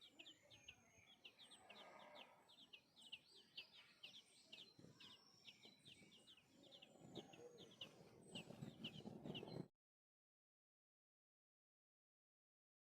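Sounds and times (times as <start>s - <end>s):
small birds chirping: 0.0s - 9.7s.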